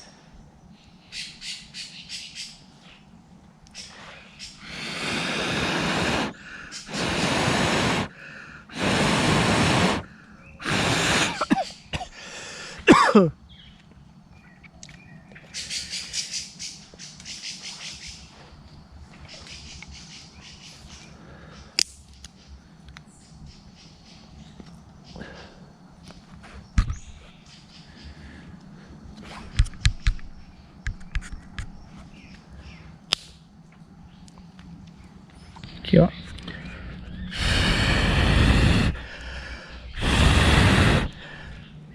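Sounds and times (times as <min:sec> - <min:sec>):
person blowing on embers: 0:03.8 - 0:13.3, 0:36.4 - 0:41.9
sticks snapping: 0:21.8 - 0:22.3, 0:33.1 - 0:33.4.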